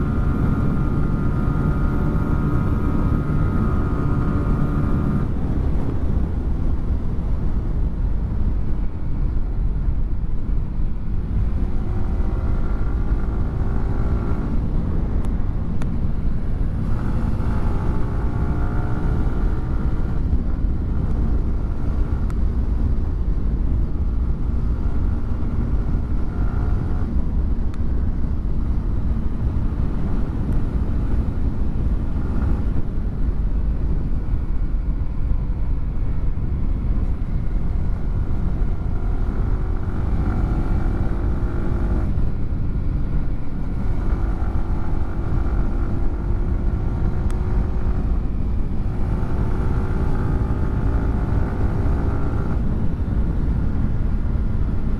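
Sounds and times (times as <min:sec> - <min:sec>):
wind rush: 0:00.0 - 0:54.9
motorcycle engine revving: 0:16.2 - 0:20.2, 0:37.3 - 0:54.9.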